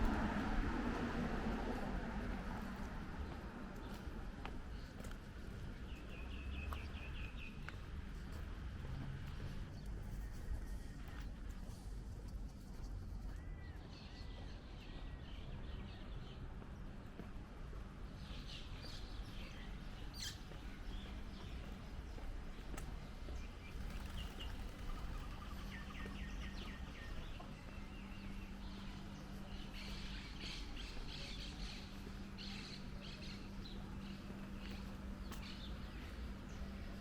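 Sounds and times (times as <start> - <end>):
street rumble: 0.0 - 37.0
small birds chirping: 18.1 - 37.0.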